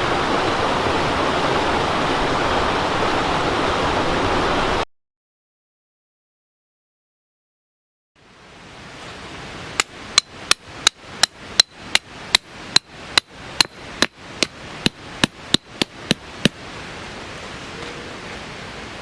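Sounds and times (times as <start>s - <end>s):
steady hiss: 0.0s - 4.8s
hammer striking metal: 9.8s - 16.6s.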